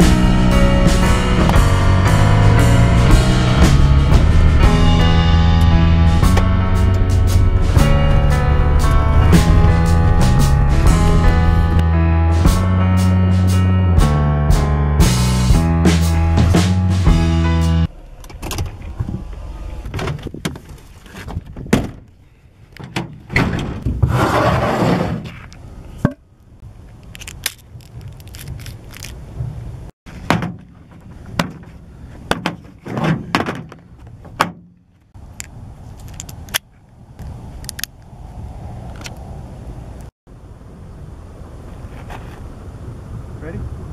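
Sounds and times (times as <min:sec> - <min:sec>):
rustling and scraping: 0:18.4 - 0:26.0, 0:26.8 - 0:37.0, 0:41.7 - 0:42.5
knocks and thumps: 0:30.2 - 0:34.8.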